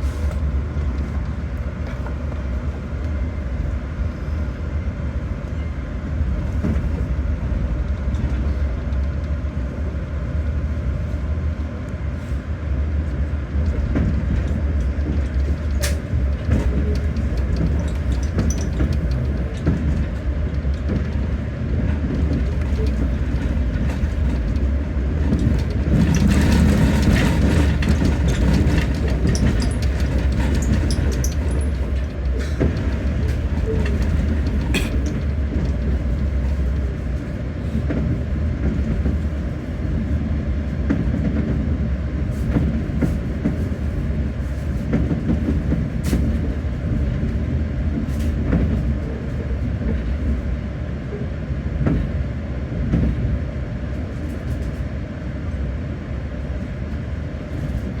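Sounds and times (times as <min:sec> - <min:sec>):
train rumbling: 0:00.0 - 0:58.0
train wheels rattling and squealing: 0:13.5 - 0:40.2.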